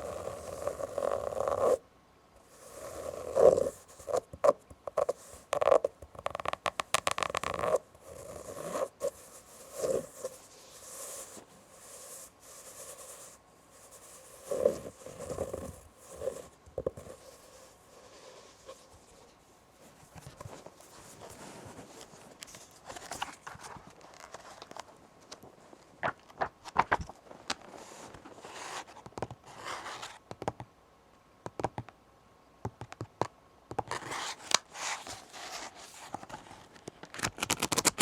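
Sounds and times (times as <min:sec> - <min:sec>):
scratching on fabric: 0:00.0 - 0:01.8, 0:02.4 - 0:24.8, 0:27.6 - 0:30.2.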